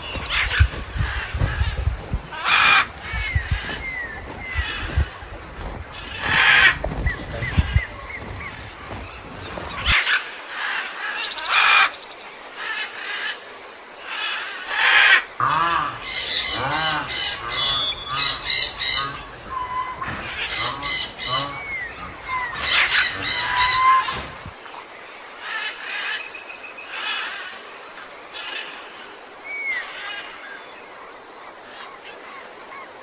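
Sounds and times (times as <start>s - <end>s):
birds chirping: 0.0s - 10.0s, 15.4s - 24.6s
harsh animal calls: 0.0s - 10.0s, 15.4s - 24.5s
high squeal-like calls: 0.0s - 10.0s, 15.6s - 24.5s.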